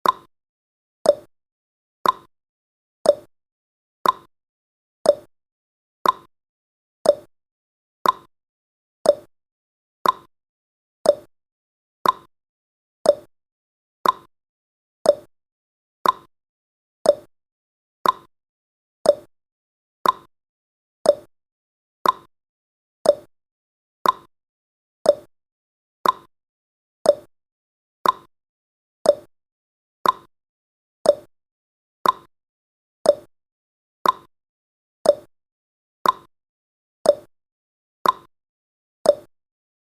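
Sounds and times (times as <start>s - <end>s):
timer ticking: 0.0s - 0.3s, 1.0s - 1.3s, 2.0s - 2.3s, 3.0s - 3.3s, 4.0s - 4.3s, 5.1s - 5.3s, 6.0s - 6.3s, 7.0s - 7.3s, 8.0s - 8.3s, 9.0s - 9.3s, 10.0s - 10.3s, 11.0s - 11.3s, 12.0s - 12.3s, 13.0s - 13.3s, 14.0s - 14.3s, 15.0s - 15.3s, 16.0s - 16.3s, 17.0s - 17.3s, 18.0s - 18.3s, 19.0s - 19.3s, 20.0s - 20.3s, 21.0s - 21.3s, 22.0s - 22.3s, 23.0s - 23.3s, 24.0s - 24.3s, 25.0s - 25.3s, 26.0s - 26.3s, 27.0s - 27.3s, 28.0s - 28.3s, 29.0s - 29.3s, 30.0s - 30.3s, 31.0s - 31.3s, 32.0s - 32.3s, 33.0s - 33.3s, 34.0s - 34.3s, 35.0s - 35.3s, 36.0s - 36.3s, 37.1s - 37.3s, 38.0s - 38.3s, 39.1s - 39.3s.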